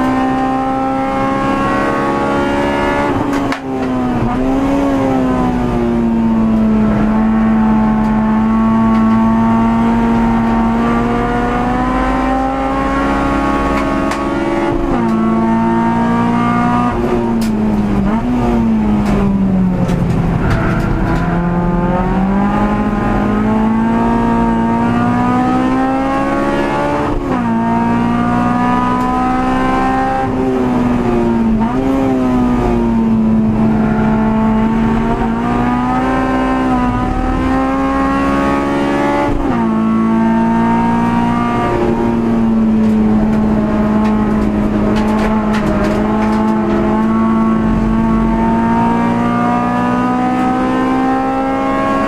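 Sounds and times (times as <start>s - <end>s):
race car engine at full throttle: 0.0s - 52.0s.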